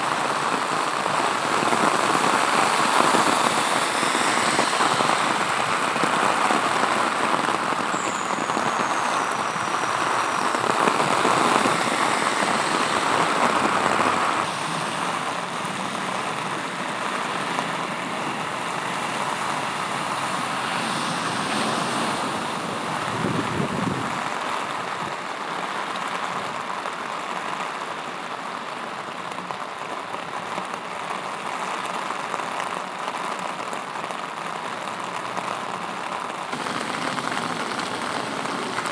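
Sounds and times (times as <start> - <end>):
heavy rain on hard surfaces: 0.0 - 38.9.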